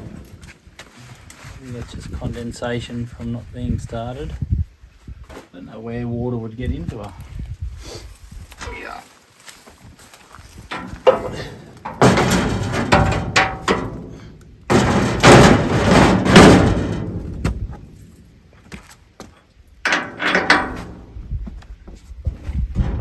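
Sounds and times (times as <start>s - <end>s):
metal parts clattering: 10.7s - 18.1s, 19.9s - 21.1s.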